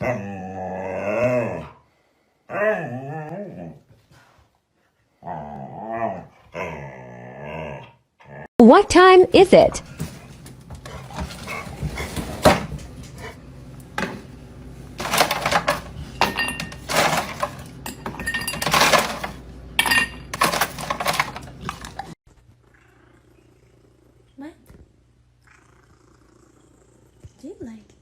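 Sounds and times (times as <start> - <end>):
hard objects clattering and clinking: 15.0 - 22.2.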